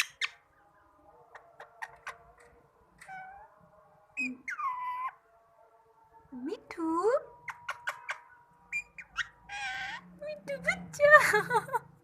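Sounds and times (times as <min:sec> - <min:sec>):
parrot meow-like calls: 0:03.0 - 0:03.5, 0:04.2 - 0:05.2, 0:07.4 - 0:10.1.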